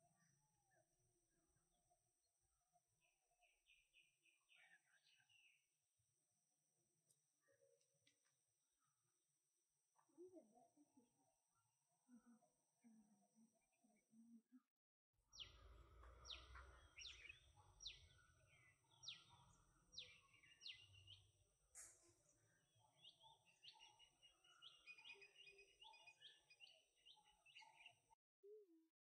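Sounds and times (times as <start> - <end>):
bird calls: 15.3 - 28.2.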